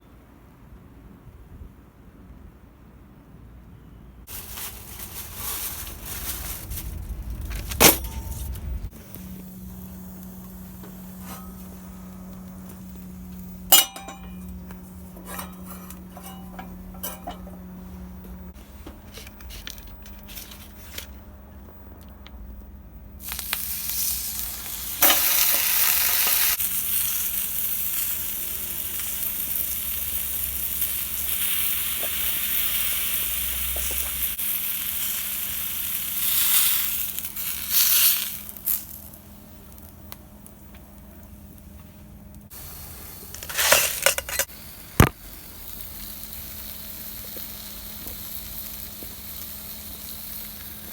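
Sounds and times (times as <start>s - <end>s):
steady low hum: 0.0s - 31.4s, 38.4s - 50.9s
bacon sizzling in a frying pan: 23.2s - 39.9s, 42.5s - 50.9s.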